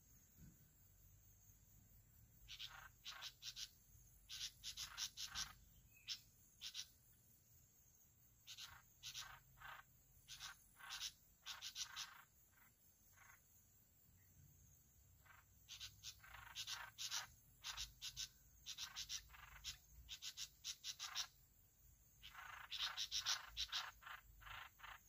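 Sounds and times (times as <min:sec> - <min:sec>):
bulbul calling: 0:02.4 - 0:07.0, 0:08.4 - 0:13.4, 0:15.2 - 0:21.4, 0:22.2 - 0:25.0.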